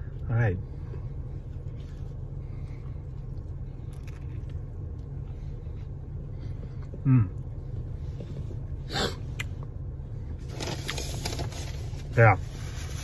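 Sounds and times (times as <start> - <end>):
car cabin rumble: 0.0 - 13.0
person chewing sandwich: 1.6 - 7.5.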